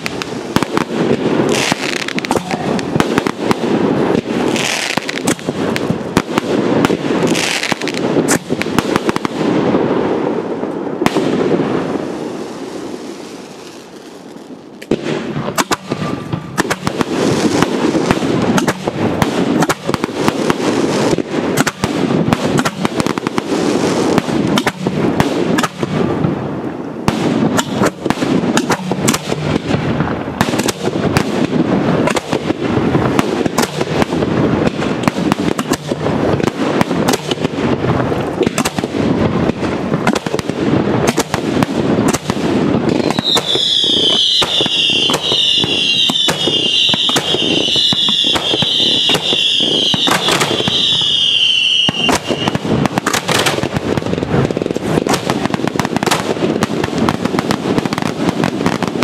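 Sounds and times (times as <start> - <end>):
fireworks bursting with crackle: 0.0 - 59.0
shrill fireworks whistles: 42.9 - 52.7.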